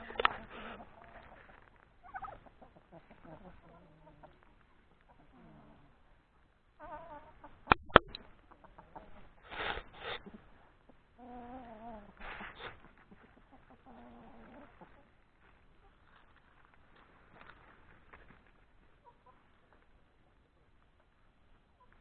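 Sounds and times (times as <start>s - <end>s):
chicken squawks: 0.0s - 4.5s, 6.8s - 10.6s, 11.2s - 15.1s
chickens clucking: 0.0s - 22.0s.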